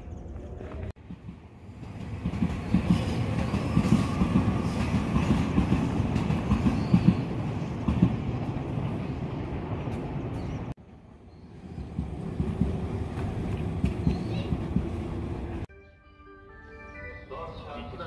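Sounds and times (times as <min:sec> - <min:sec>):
train wheels clacking on rails: 0:01.0 - 0:09.0, 0:11.8 - 0:15.6.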